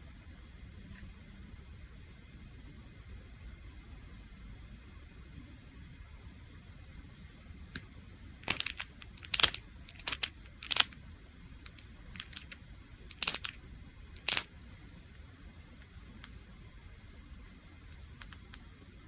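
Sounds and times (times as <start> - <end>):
sharp clicks: 7.8 - 11.0, 11.7 - 13.6, 14.2 - 14.5, 17.9 - 18.7.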